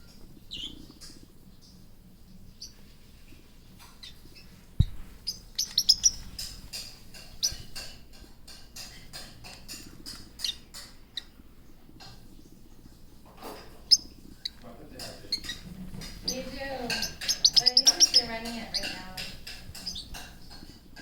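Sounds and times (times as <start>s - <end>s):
parrots chirping: 0.1s - 20.9s
dull knock: 4.8s - 5.1s.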